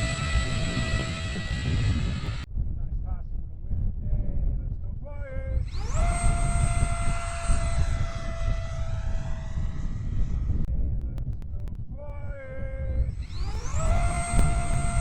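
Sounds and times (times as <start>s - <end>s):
electric ducted fan whining: 0.0s - 15.0s
wind rumbling on microphone: 0.0s - 15.0s
clicks: 11.0s - 12.2s, 13.2s - 15.0s.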